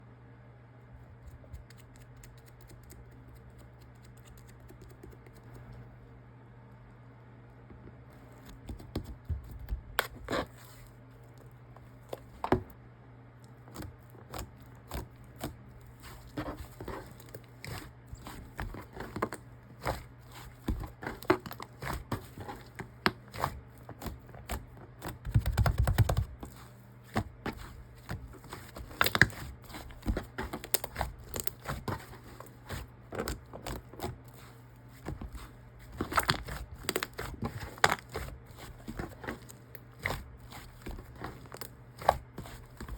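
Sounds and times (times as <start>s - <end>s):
slime squish: 13.4s - 42.9s.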